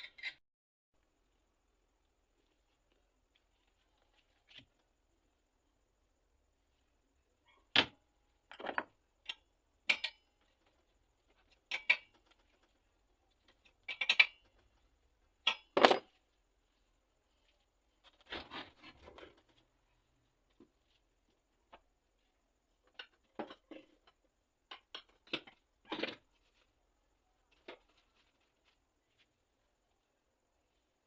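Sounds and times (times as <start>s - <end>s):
tools knocking and clattering: 15.4s - 16.2s
rustling scrape: 16.7s - 19.7s.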